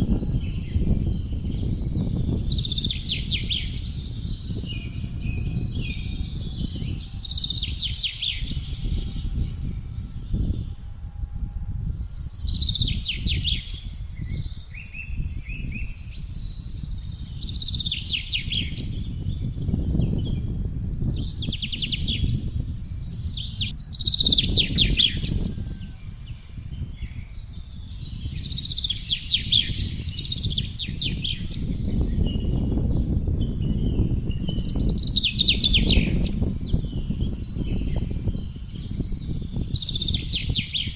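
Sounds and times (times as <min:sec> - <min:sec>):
songbirds trilling: 0:00.0 - 0:40.9
wind blowing in gusts: 0:00.0 - 0:40.9.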